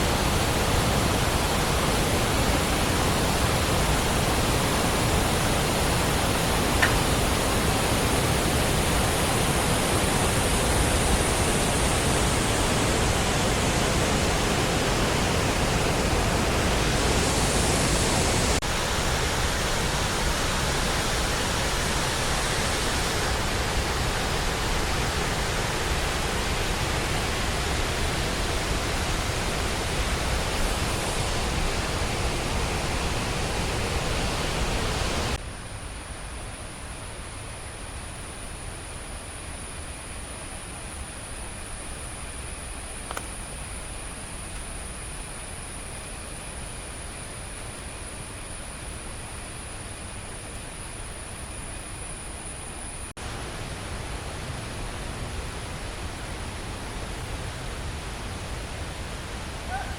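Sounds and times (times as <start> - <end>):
waterfall rushing: 0.0 - 35.4.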